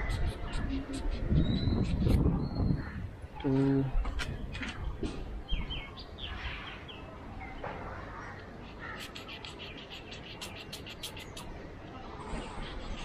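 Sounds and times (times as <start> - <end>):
birds calling: 0.0 - 13.0
sharp bird chirps: 9.0 - 11.5.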